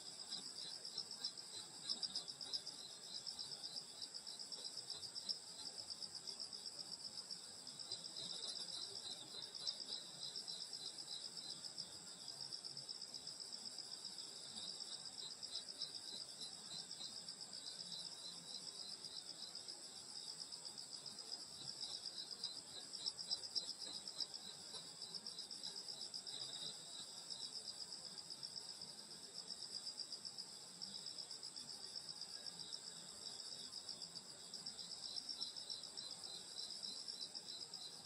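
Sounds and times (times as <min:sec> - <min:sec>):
rapidly pulsing insect trill: 0:00.0 - 0:38.0.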